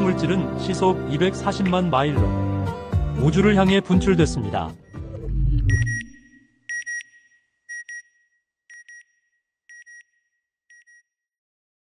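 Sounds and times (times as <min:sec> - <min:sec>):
electronic double beeps: 0:04.8 - 0:08.0.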